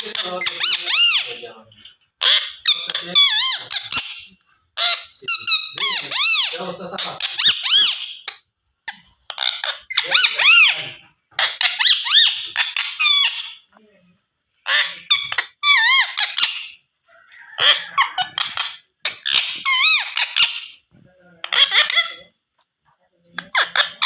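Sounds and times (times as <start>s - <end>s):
parakeet shrill squeaky calls: 0.0s - 1.4s, 2.2s - 8.4s, 9.3s - 13.7s, 14.6s - 16.8s, 17.4s - 20.8s, 21.4s - 22.3s, 23.4s - 24.0s.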